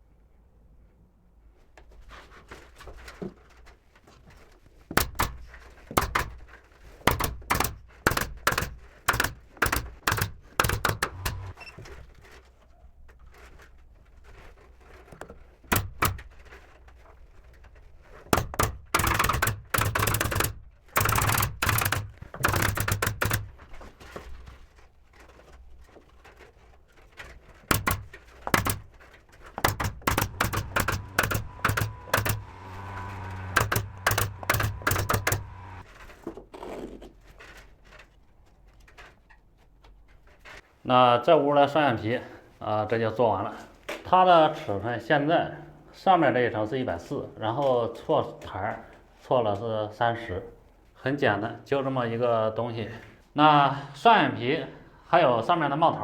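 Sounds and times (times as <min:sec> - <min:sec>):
sharp wooden knocks: 0:04.9 - 0:11.6, 0:15.2 - 0:16.4, 0:18.2 - 0:23.7, 0:27.6 - 0:35.8
rasping bursts: 0:05.0 - 0:06.5, 0:07.1 - 0:11.7, 0:15.7 - 0:16.4, 0:18.3 - 0:23.6, 0:27.7 - 0:35.9.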